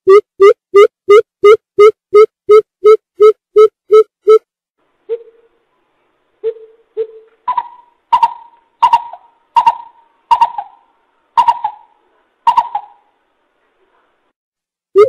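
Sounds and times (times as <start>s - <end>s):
coucal hooting: 6.4s - 13.1s.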